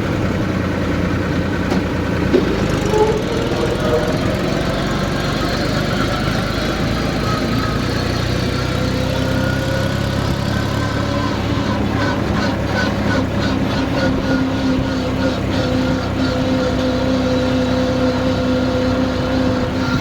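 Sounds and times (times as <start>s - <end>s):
tractor engine running: 0.0s - 20.0s
rhythmic clatter: 0.2s - 8.0s.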